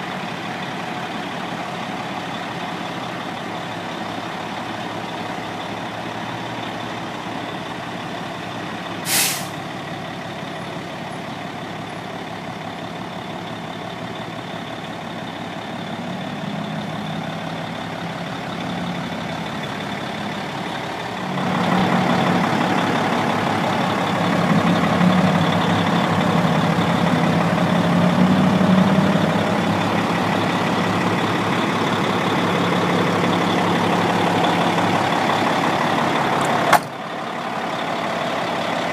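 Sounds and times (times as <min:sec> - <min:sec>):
truck diesel engine running: 0:00.0 - 0:38.9
air brake hiss: 0:09.0 - 0:09.6.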